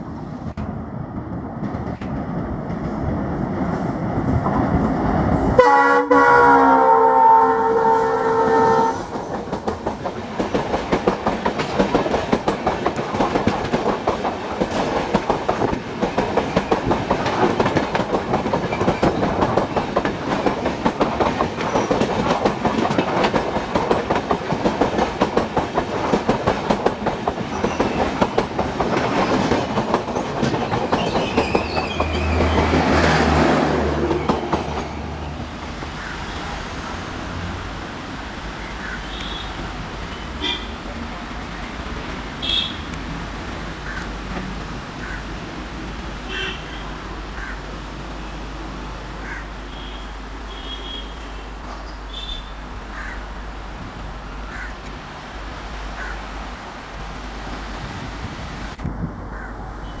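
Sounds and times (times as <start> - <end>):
diesel locomotive horn: 5.6 - 9.2, 38.8 - 40.8, 42.4 - 43.0, 46.2 - 47.0, 49.7 - 52.6.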